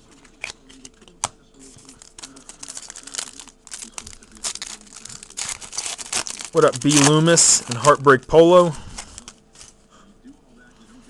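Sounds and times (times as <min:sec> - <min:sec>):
foil wrapper crinkling and tearing: 0:01.6 - 0:09.8.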